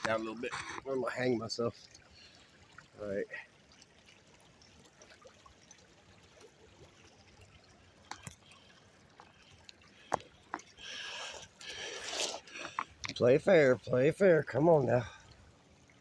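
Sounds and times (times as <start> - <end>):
faint flowing river: 0.0 - 16.0
scraping and rustling on tree trunk: 11.2 - 13.1.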